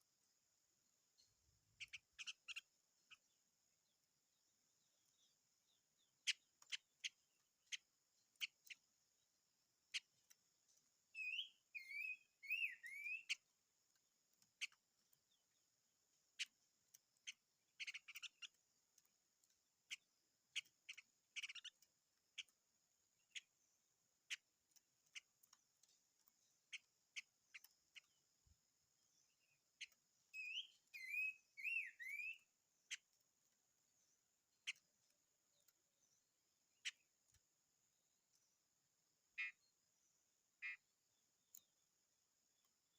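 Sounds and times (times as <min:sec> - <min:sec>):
songbird warbling: 0:01.8 - 0:03.3, 0:11.2 - 0:13.4, 0:17.2 - 0:18.6, 0:19.9 - 0:22.5, 0:29.1 - 0:33.1, 0:40.6 - 0:40.8.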